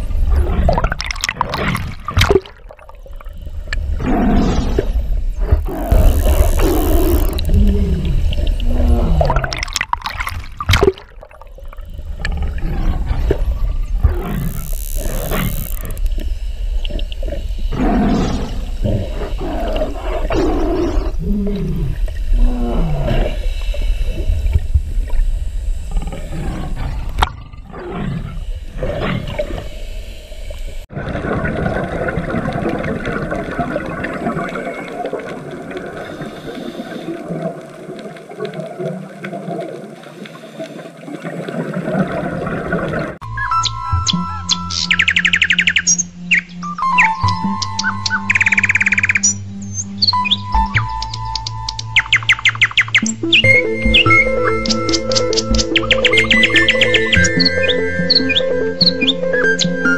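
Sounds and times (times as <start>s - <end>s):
underwater bubbling hiss: 0.0s - 43.2s.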